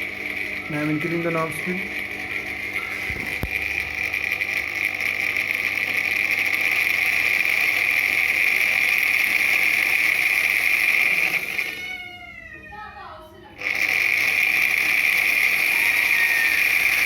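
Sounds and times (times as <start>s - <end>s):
mixer grinder motor whine: 0.0s - 17.0s.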